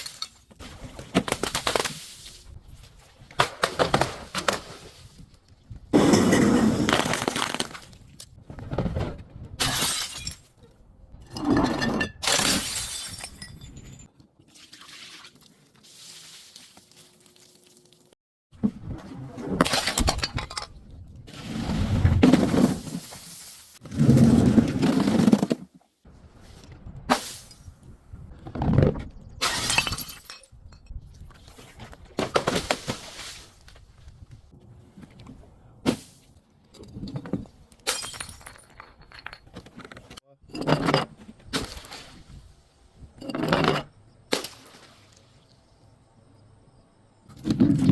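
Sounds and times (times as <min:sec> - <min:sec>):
glass breaking and shattering: 0:09.6 - 0:10.6, 0:11.7 - 0:14.1, 0:29.4 - 0:30.6, 0:37.8 - 0:39.4, 0:44.3 - 0:44.9.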